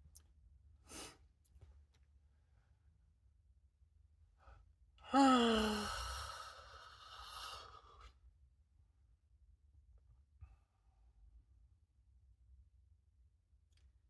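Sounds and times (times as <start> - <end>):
person sighing: 5.0 - 7.9.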